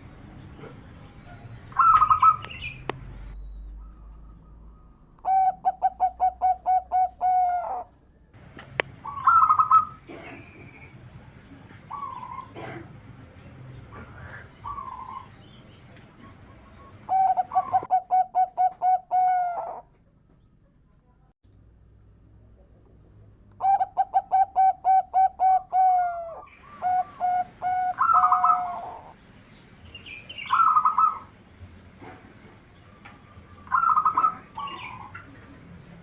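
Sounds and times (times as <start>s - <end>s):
dove cooing song: 0.5s - 2.9s, 3.7s - 8.0s, 8.9s - 10.9s, 11.6s - 20.0s, 23.6s - 29.2s, 30.3s - 31.3s, 32.9s - 35.6s.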